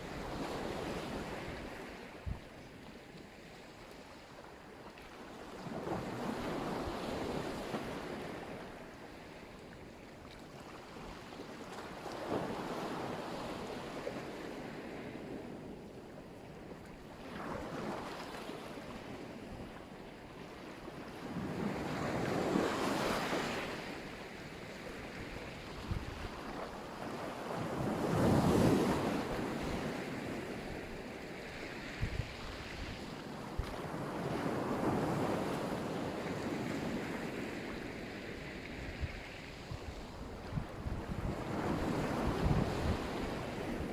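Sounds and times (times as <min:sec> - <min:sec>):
sea waves breaking on shore: 0:00.0 - 0:43.9
wind buffeting microphone: 0:25.7 - 0:26.4, 0:31.9 - 0:33.7, 0:38.8 - 0:43.9.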